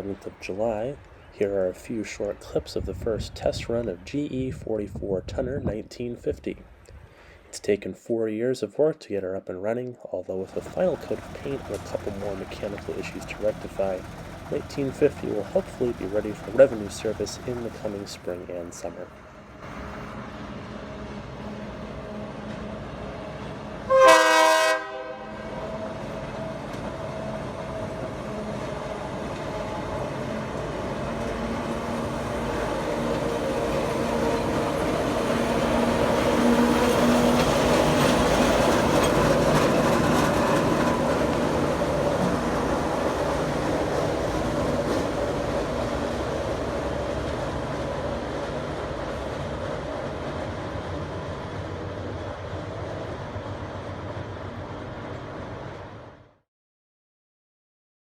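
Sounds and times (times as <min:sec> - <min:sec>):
diesel locomotive engine: 0:00.0 - 0:07.6, 0:10.2 - 0:56.4
train wheels on rails: 0:10.3 - 0:23.9, 0:25.5 - 0:56.0
locomotive horn blast: 0:23.8 - 0:26.3.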